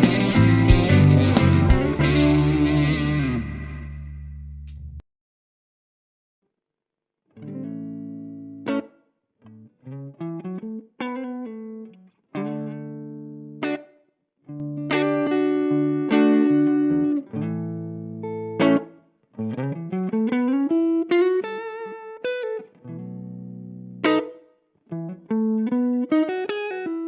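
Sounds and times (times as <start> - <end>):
overdriven electric guitar chords: 0.0 - 4.7, 14.6 - 18.9.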